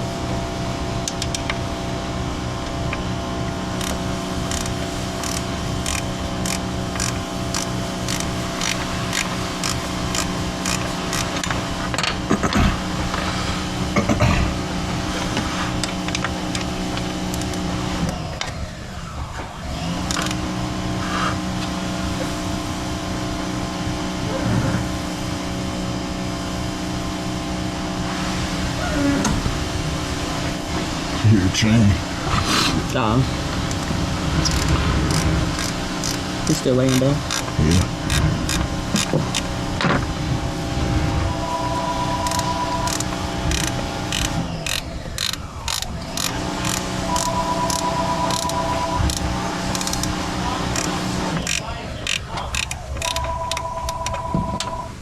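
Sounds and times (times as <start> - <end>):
mechanical hum with fixed tones: 0.0 - 55.0
regular clicks: 1.0 - 1.6, 3.8 - 12.6, 15.8 - 18.6, 20.0 - 20.4, 33.6 - 39.5, 42.2 - 54.2.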